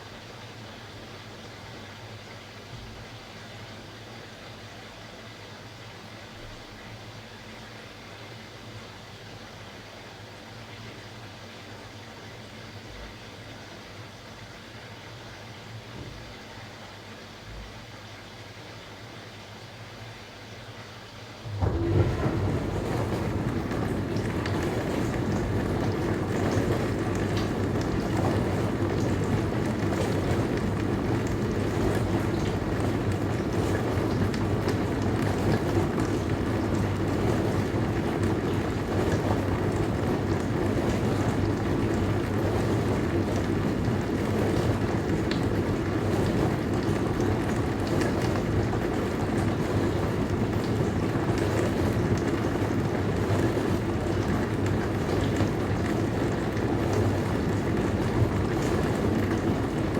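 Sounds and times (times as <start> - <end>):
dishwasher running: 21.4 - 59.9.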